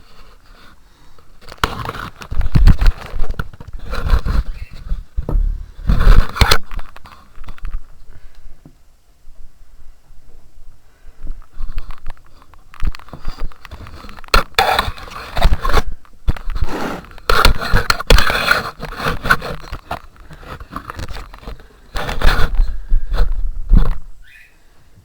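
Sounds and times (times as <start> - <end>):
sharp knocks: 5.2 - 6.6.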